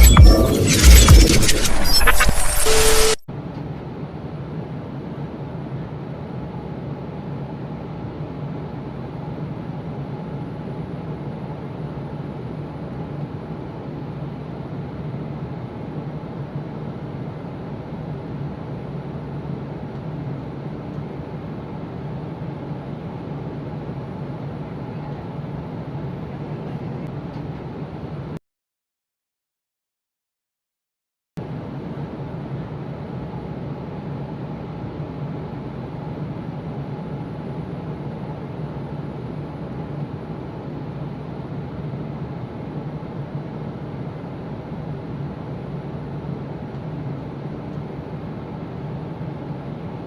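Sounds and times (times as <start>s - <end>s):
airliner cabin engine drone: 0.0s - 28.4s, 31.4s - 50.0s.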